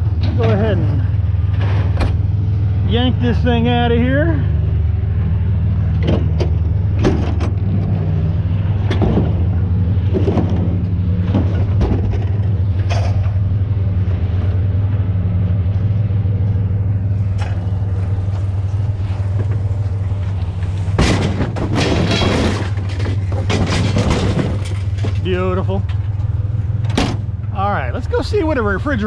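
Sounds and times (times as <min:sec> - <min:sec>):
vehicle engine idling: 0:00.0 - 0:29.0.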